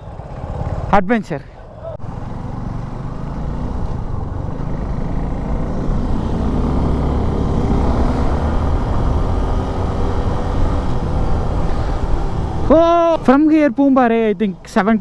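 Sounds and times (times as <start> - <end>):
motorcycle engine running: 0.0 - 1.0, 1.7 - 13.3
wind noise: 5.8 - 13.3.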